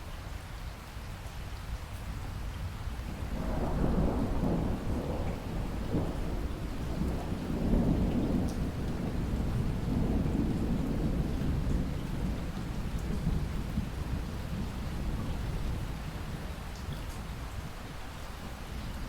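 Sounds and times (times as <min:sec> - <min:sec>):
rain falling: 0:00.0 - 0:19.0
rumble of thunder: 0:03.1 - 0:17.8.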